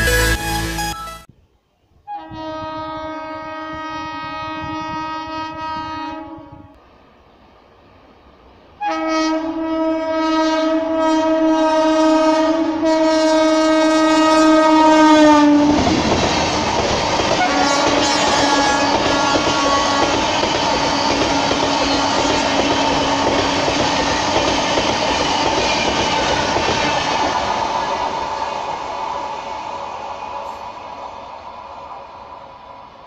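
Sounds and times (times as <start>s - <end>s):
locomotive horn blasts: 2.1s - 6.8s, 8.8s - 15.8s, 17.4s - 23.6s
train rushing past: 3.4s - 33.0s.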